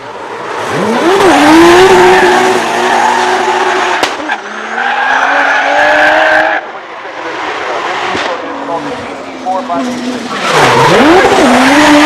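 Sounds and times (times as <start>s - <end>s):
car engine revving hard: 0.6s - 4.8s, 10.4s - 12.0s
sharp crack: 3.9s - 4.4s.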